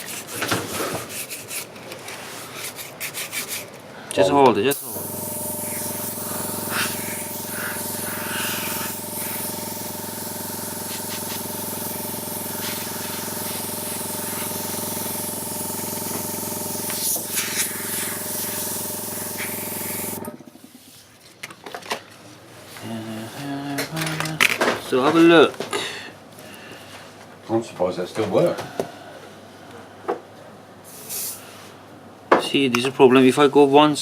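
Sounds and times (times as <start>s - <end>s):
hot air gun blowing: 4.7s - 20.4s.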